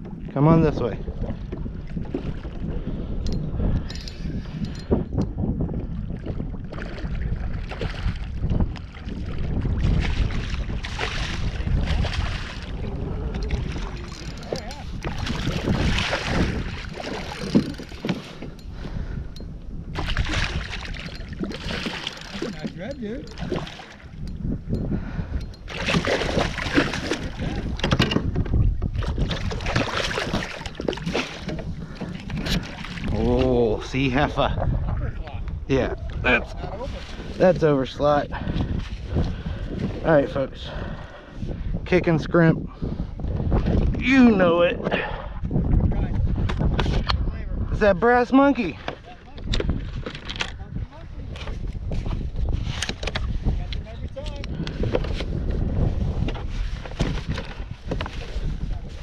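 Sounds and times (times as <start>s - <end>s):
water splashing and sloshing: 0.0s - 41.7s, 48.0s - 59.0s
wind rumbling on microphone: 0.0s - 59.0s.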